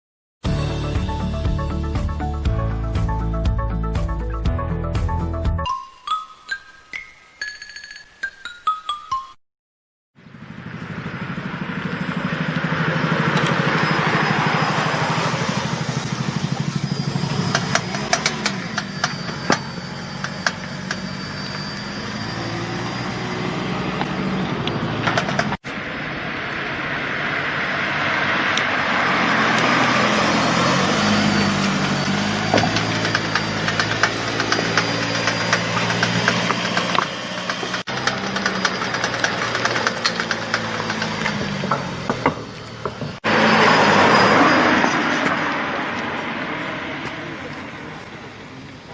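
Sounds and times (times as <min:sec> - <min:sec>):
car engine and road noise: 0:10.2 - 0:48.9
rapid clicking from axle: 0:15.0 - 0:21.2, 0:24.0 - 0:25.6, 0:31.2 - 0:43.2.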